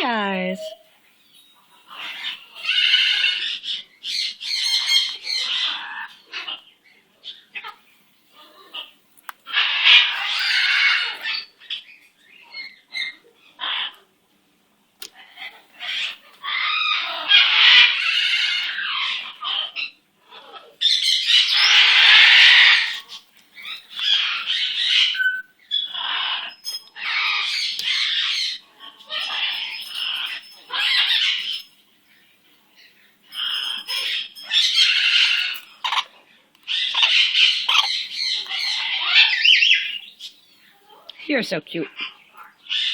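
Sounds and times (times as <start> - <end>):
parrot squawking: 0.0 - 0.9, 1.8 - 6.7, 9.5 - 11.6, 15.3 - 31.7, 33.3 - 36.1, 36.7 - 40.2, 41.9 - 42.9.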